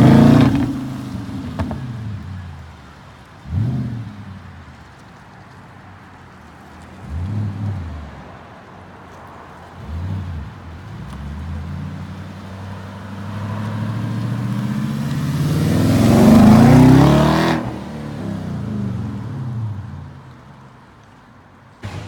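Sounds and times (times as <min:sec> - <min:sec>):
car engine accelerating: 0:00.0 - 0:05.0, 0:09.6 - 0:20.4.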